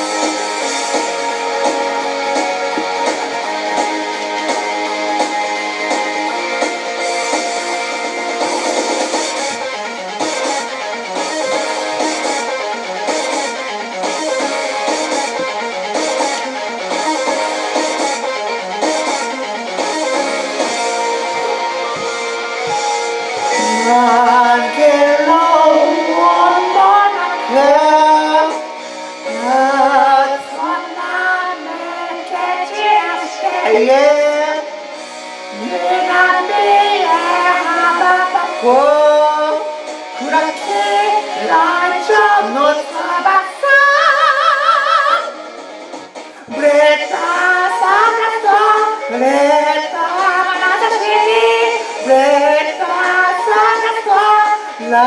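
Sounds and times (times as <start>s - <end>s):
rock backing track: 0.0s - 29.5s
woman singing: 23.4s - 34.7s, 35.5s - 45.4s, 46.5s - 55.0s.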